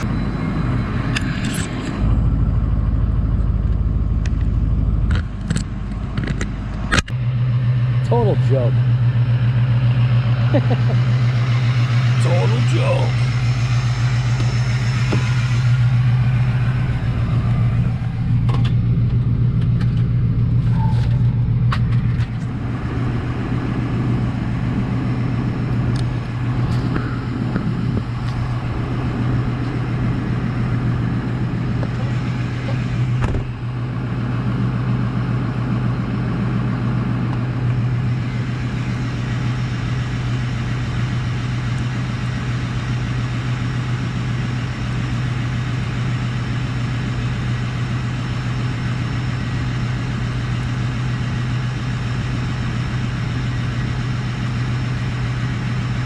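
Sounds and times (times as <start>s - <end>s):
truck engine humming: 0.0s - 56.0s.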